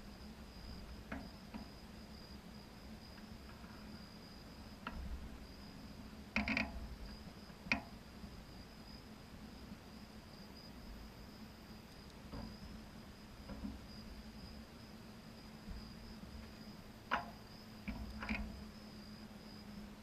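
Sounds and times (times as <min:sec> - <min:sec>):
crickets chirping: 0:00.0 - 0:20.0
scattered clicks and knocks: 0:01.1 - 0:01.7, 0:06.4 - 0:07.9, 0:13.4 - 0:13.8, 0:16.4 - 0:18.6.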